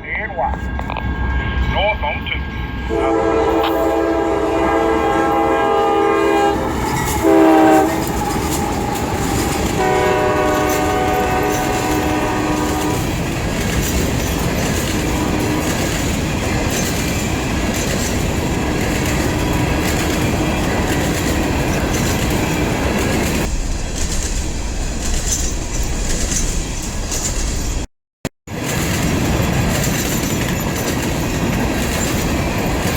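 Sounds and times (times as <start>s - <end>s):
freight train rumbling: 0.0s - 32.9s
locomotive horn blasts: 1.6s - 13.1s, 15.0s - 15.8s
wheels clicking over rail joints: 6.6s - 27.8s, 28.5s - 32.9s.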